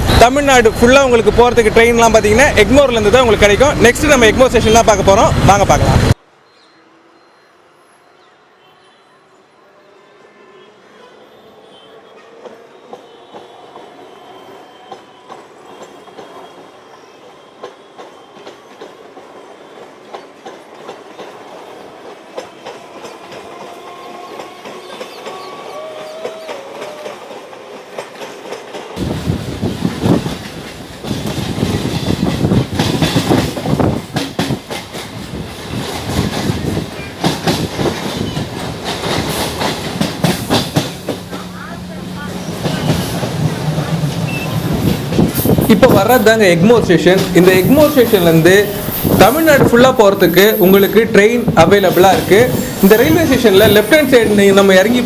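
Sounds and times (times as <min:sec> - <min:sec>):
train wheels clattering: 0:14.9 - 0:55.0.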